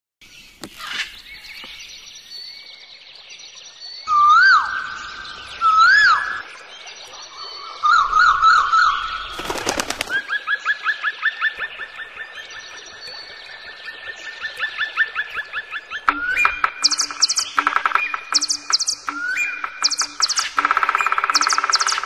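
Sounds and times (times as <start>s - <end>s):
songbird whistled notes: 3.9s - 6.5s, 16.0s - 22.0s
bird warbling: 14.6s - 22.0s
high bird chirping: 15.2s - 22.0s
rapid sharp clicks: 16.4s - 22.0s.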